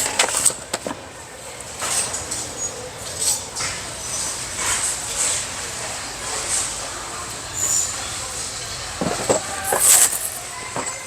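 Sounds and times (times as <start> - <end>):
cardboard boxes scraping and rustling: 9.0 - 11.0.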